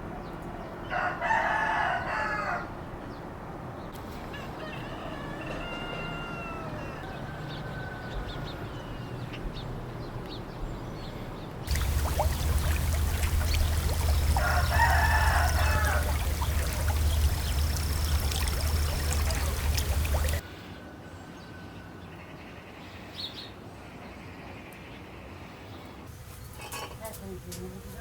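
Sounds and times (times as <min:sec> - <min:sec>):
outdoor background: 0:00.0 - 0:28.0
rooster crowing: 0:00.9 - 0:02.7, 0:04.4 - 0:08.6, 0:11.7 - 0:20.4.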